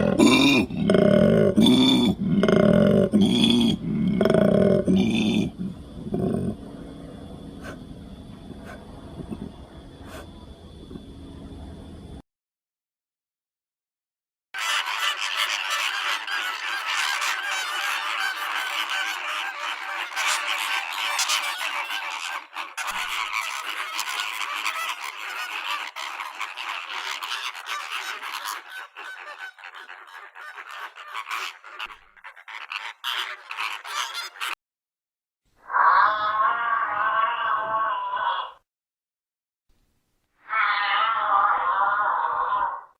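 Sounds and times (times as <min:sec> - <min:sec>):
flamingos honking and calling: 0:14.6 - 0:34.6.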